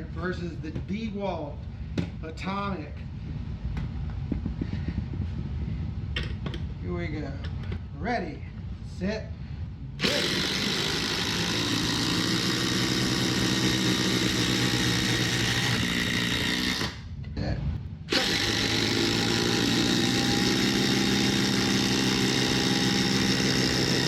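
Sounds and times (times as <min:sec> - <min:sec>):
impact drivers hammering: 0:10.0 - 0:17.0, 0:18.1 - 0:24.0
motor whine: 0:10.0 - 0:17.1, 0:18.1 - 0:24.0.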